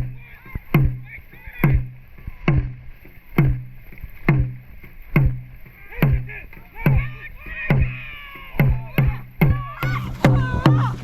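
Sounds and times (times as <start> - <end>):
drum booming strokes: 8.6 - 11.0.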